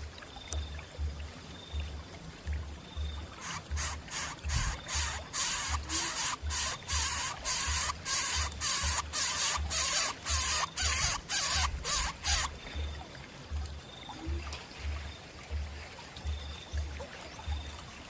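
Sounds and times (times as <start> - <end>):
background music beat: 0.6 - 18.0
rapid rasping hisses: 3.4 - 12.5.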